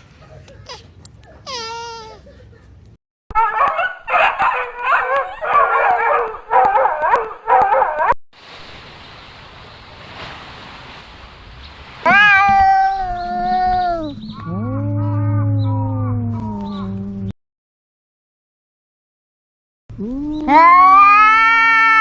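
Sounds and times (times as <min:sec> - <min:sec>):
long animal call: 0:03.4 - 0:08.1
cats meowing: 0:03.4 - 0:08.2.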